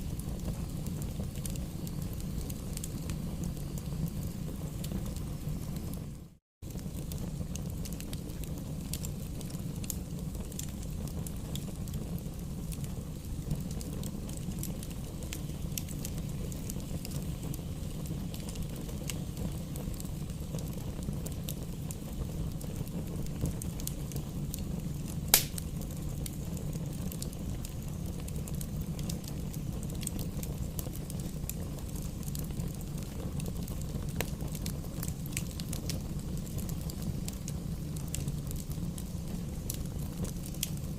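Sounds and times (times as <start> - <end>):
low rumble of flames: 0.0 - 40.9
small fire crackles: 0.0 - 40.9
sharp loud pop: 25.3 - 25.6.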